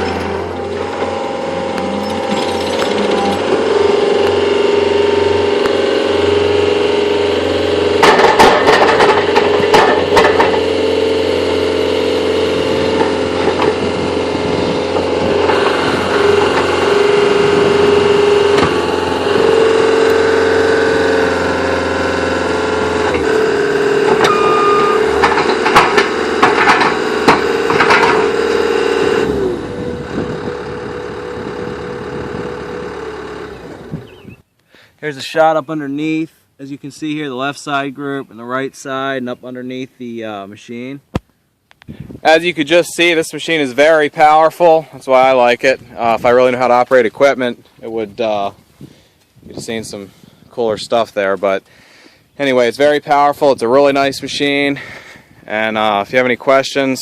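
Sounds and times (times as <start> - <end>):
clanking and knocking: 0.0 - 4.5, 7.9 - 10.8, 12.8 - 20.2, 23.0 - 29.2
diesel engine at high throttle: 0.0 - 34.5.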